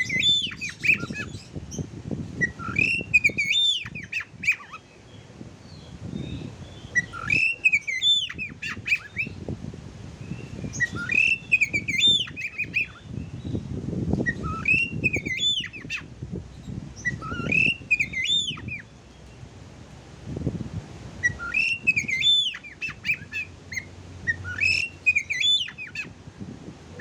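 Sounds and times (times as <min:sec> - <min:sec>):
bird whistling and warbling: 0:00.0 - 0:01.8, 0:02.4 - 0:04.9, 0:05.7 - 0:09.4, 0:10.2 - 0:13.6, 0:14.2 - 0:18.9, 0:21.2 - 0:26.2.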